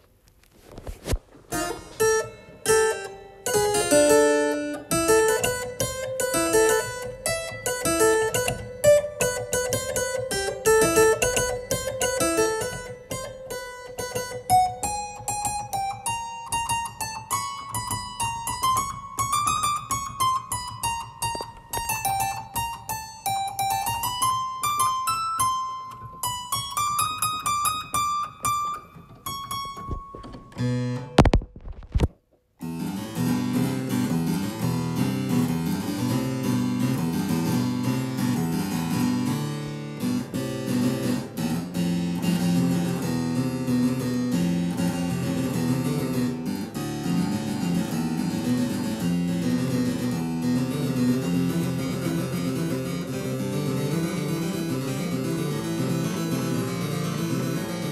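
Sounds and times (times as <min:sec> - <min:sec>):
harpsichord playing: 0:01.5 - 0:17.3, 0:32.6 - 0:57.9.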